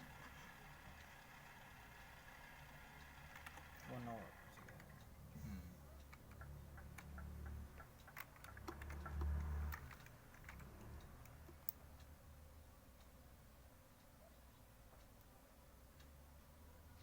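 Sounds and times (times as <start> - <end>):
light clicks and ticks: 5.9 - 12.2.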